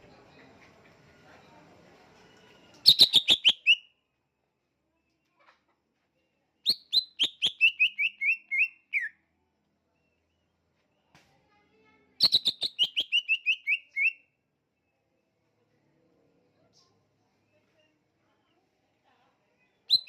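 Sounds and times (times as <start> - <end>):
bird singing whistled notes: 2.8 - 3.9, 6.6 - 9.2, 12.2 - 14.3.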